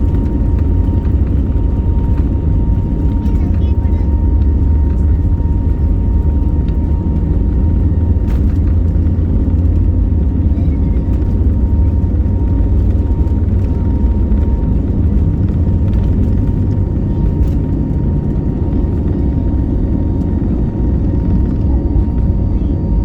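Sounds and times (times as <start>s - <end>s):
jet engine rumble in cabin: 0.0s - 23.0s.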